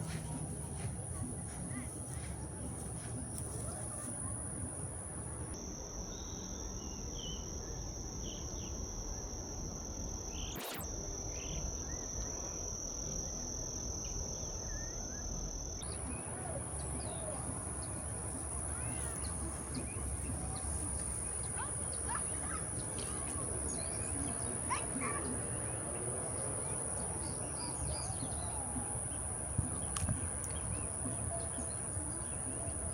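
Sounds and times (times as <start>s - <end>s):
insects trilling: 0.0s - 32.9s
faint bird chirps: 6.0s - 9.3s, 10.2s - 12.6s.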